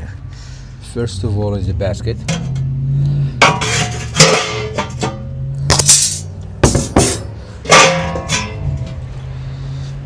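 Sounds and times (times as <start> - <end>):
metal basket clanking: 3.4 - 9.0.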